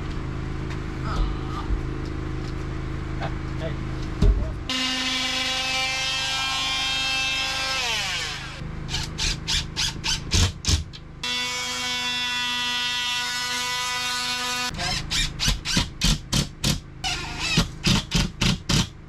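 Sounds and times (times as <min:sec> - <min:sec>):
power tool motor running: 0:04.7 - 0:16.1, 0:17.0 - 0:18.8.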